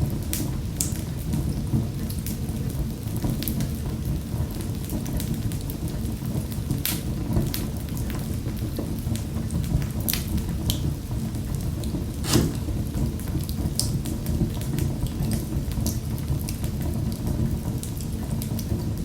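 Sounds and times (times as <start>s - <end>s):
wood fire crackling and popping: 12.2s - 13.9s.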